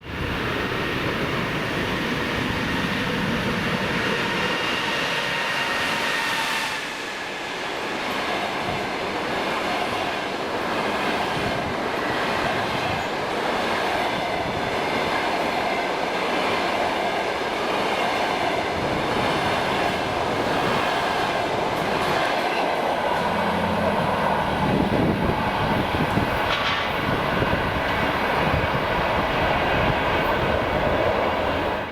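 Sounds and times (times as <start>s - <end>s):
electric locomotive whine: 0.0s - 31.9s
train coaches rolling on rails: 0.0s - 31.9s.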